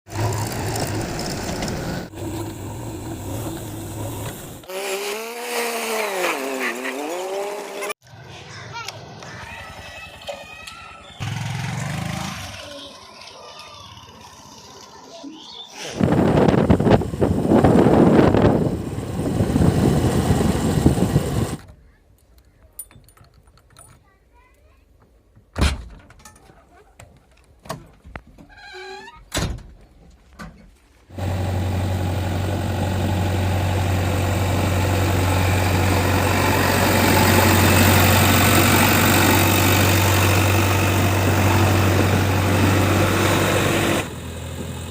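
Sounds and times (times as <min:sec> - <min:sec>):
diesel engine running: 0:00.1 - 0:04.7, 0:16.2 - 0:21.6, 0:31.1 - 0:44.9.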